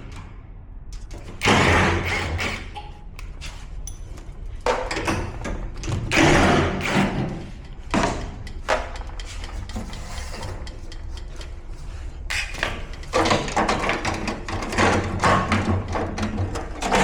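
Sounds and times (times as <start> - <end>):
tools and metal parts clattering: 3.8 - 11.7, 12.3 - 17.0.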